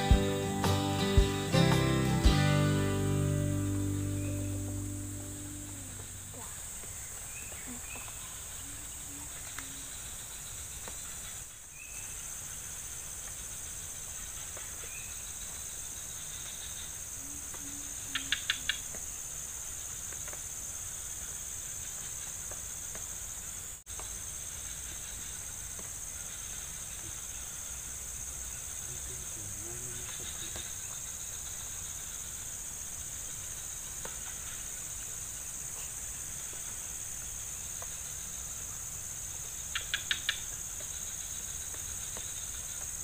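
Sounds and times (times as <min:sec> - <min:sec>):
sharp chirps: 0:00.0 - 0:06.5
insects chirring: 0:00.0 - 0:43.0.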